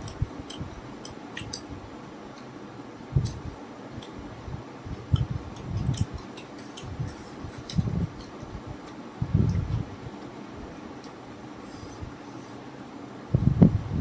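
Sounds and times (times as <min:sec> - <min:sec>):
mouth clicks and smacks: 0:00.0 - 0:01.7, 0:03.2 - 0:04.2, 0:05.0 - 0:09.8.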